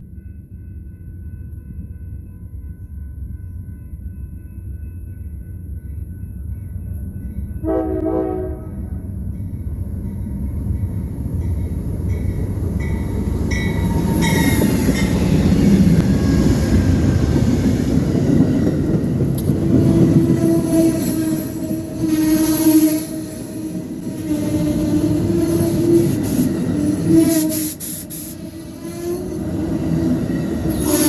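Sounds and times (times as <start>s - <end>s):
regular clicks of train wheels: 0.0s - 7.6s, 9.2s - 31.0s
train rumbling: 0.0s - 31.0s
train horn blast: 7.6s - 9.1s.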